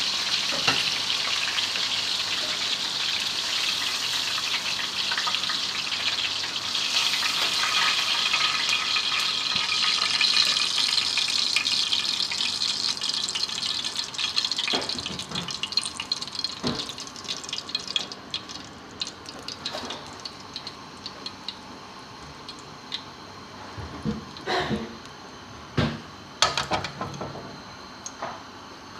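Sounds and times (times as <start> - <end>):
chicken sizzling in hot oil: 0.0 - 21.6.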